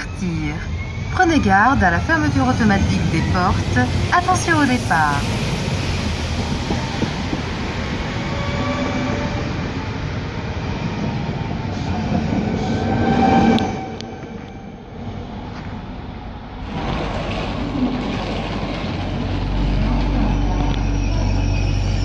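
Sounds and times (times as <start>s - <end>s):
wheels rumbling on rail: 0.0s - 22.0s
train motor whine rising: 16.6s - 22.0s.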